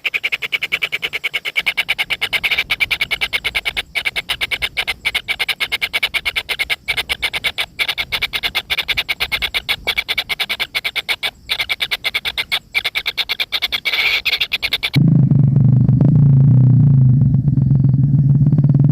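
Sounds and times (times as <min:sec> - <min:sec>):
chicks calling with harsh clicks: 0:00.0 - 0:15.0.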